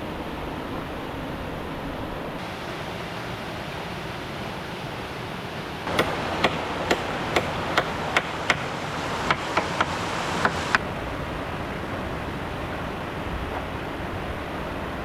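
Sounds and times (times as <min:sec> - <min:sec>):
rushing water: 0:00.0 - 0:15.0
tool striking bamboo: 0:05.9 - 0:10.8.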